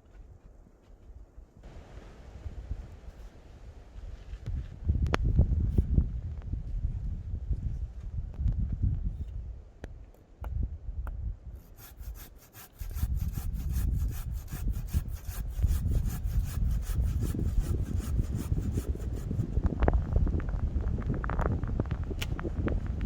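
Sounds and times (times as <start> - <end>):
hand saw cutting wood: 11.6 - 19.6.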